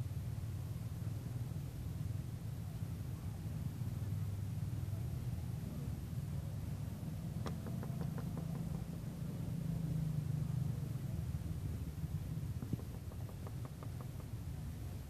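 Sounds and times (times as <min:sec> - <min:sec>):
engine idling rumble: 0:00.0 - 0:15.0
faint clicks: 0:07.4 - 0:08.9, 0:12.6 - 0:14.4.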